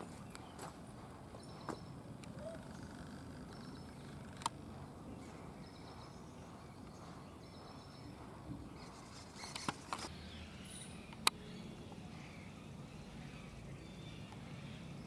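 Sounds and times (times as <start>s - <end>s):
faint outdoor ambience: 0.0s - 15.0s
small bird calling: 0.0s - 15.0s
sharp clicks: 3.5s - 4.6s.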